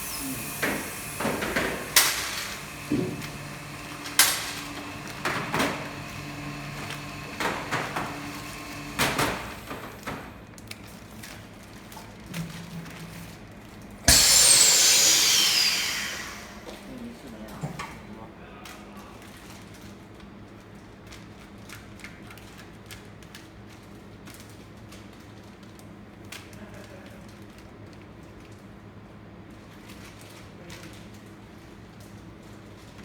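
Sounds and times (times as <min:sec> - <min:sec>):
vacuum packing machine air rush: 0:00.0 - 0:10.4, 0:14.0 - 0:16.9.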